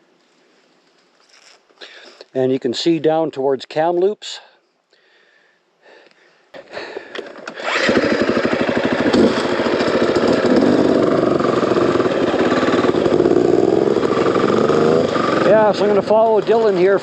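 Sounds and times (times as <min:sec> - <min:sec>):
dirt bike engine running: 0:07.5 - 0:17.0.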